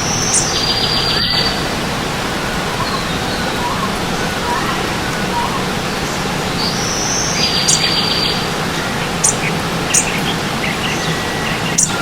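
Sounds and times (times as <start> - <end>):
bird trill: 0.0 - 1.6, 2.8 - 12.0
birds calling: 0.0 - 12.0
stream water rushing: 0.0 - 12.0.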